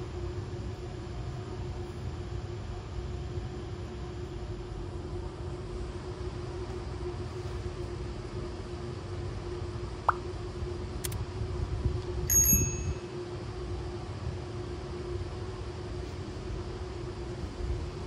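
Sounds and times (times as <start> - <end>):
train rumble and hum: 0.0 - 18.0
high metallic ding with knock: 12.3 - 13.1.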